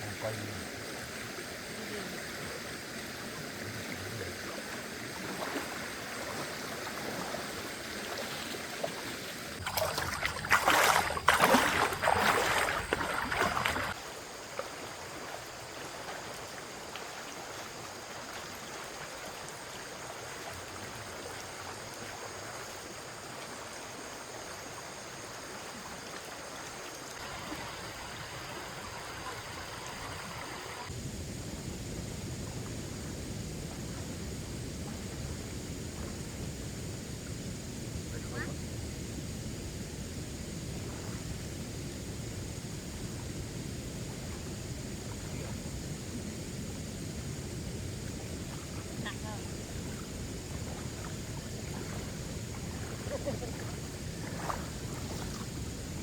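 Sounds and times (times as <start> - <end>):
stream running: 0.0 - 56.0.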